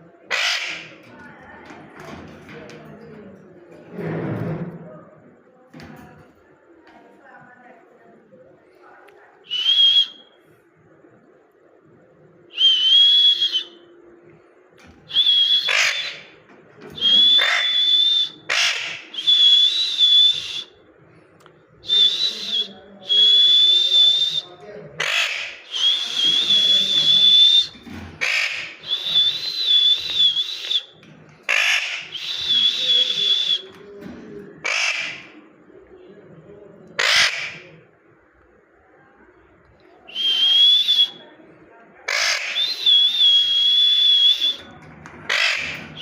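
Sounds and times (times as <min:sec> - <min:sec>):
parrot squawks: 0:00.3 - 0:01.0, 0:15.1 - 0:16.3, 0:17.0 - 0:19.2, 0:25.0 - 0:26.0, 0:27.0 - 0:29.3, 0:31.5 - 0:33.6, 0:34.6 - 0:35.4, 0:37.0 - 0:37.7, 0:42.1 - 0:43.4, 0:45.3 - 0:46.0
parrot whistling calls: 0:09.5 - 0:10.4, 0:12.5 - 0:13.9, 0:15.1 - 0:20.8, 0:21.8 - 0:33.8, 0:40.1 - 0:41.2, 0:42.1 - 0:46.0.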